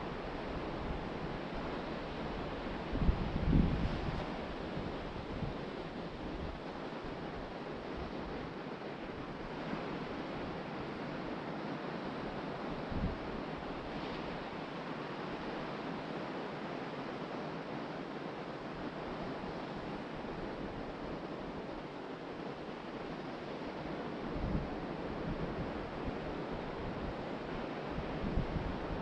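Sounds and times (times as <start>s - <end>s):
wind on microphone: 0.0s - 8.4s, 12.7s - 14.6s, 23.8s - 29.0s
ocean surf washing onto beach: 0.0s - 29.0s.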